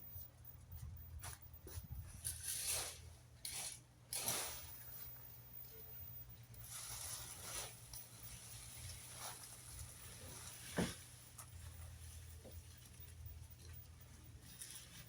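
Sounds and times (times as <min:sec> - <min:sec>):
rustling scrapes: 0:01.2 - 0:05.7, 0:06.5 - 0:15.0.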